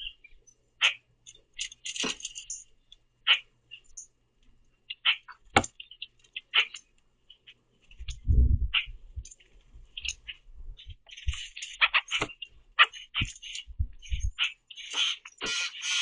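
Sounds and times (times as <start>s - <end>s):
grackles harsh calls: 0.8s - 2.0s, 4.9s - 6.8s, 11.0s - 16.0s.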